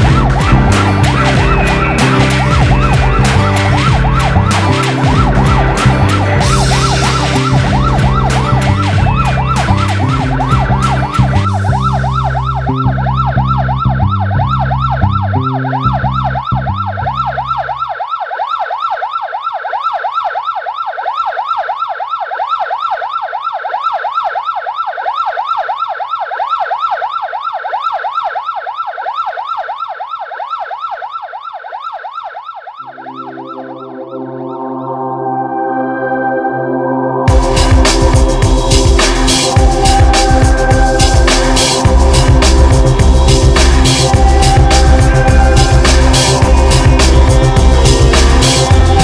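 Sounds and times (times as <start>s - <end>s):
music: 0.0s - 17.6s, 32.9s - 49.0s
low pulsing bass: 0.0s - 17.8s, 37.3s - 49.0s
siren yelping: 0.0s - 49.0s.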